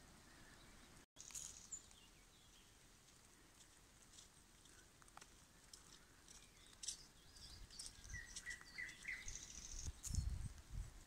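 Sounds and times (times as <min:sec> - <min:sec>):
songbird singing: 0:00.0 - 0:11.0
wind buffeting microphone: 0:07.3 - 0:11.0.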